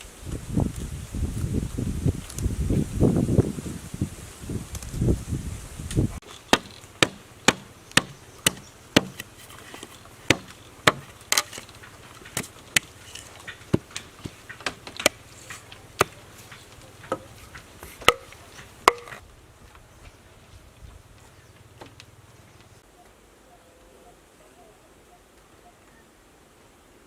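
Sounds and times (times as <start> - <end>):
wood being chopped: 6.2 - 19.2.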